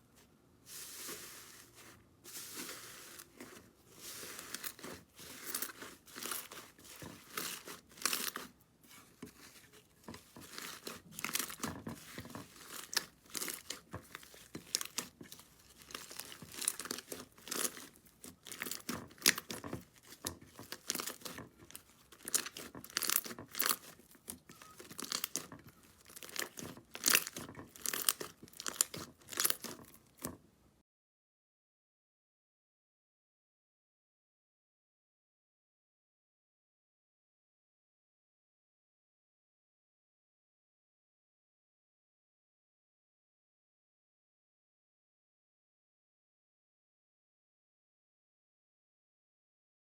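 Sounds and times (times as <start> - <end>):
slime crackling and popping: 4.3 - 8.5, 10.2 - 30.3.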